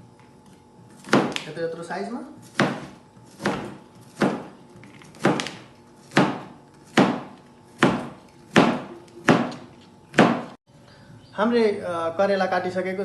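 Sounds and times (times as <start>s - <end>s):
knife chopping on cutting board: 0.9s - 1.6s, 2.4s - 10.6s.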